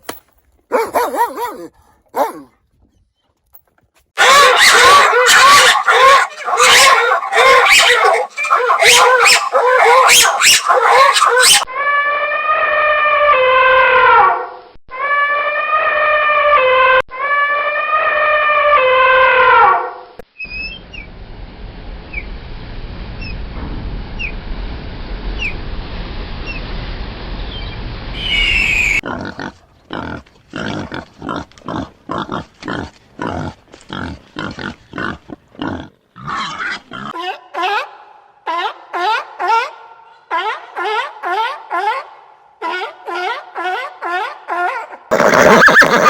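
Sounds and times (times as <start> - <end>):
long wavering animal calls: 4.2 - 11.9, 28.2 - 29.0
low rumble: 20.8 - 28.2
rapid short animal calls: 45.1 - 46.0.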